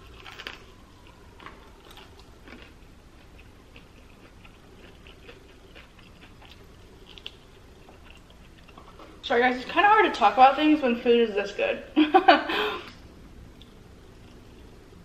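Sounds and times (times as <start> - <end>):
person chewing: 0.0 - 9.2.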